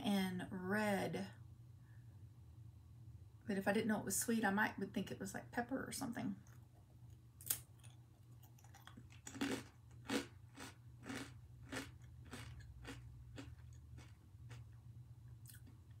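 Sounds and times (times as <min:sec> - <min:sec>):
mouth chewing crunchy snack: 0:07.4 - 0:14.8, 0:15.4 - 0:15.9.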